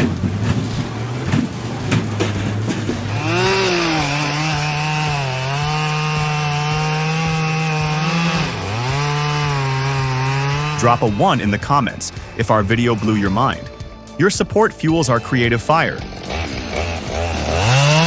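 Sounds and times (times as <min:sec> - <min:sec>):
chainsaw cutting wood: 0:00.0 - 0:13.9, 0:15.7 - 0:18.0
low engine hum: 0:00.0 - 0:14.2.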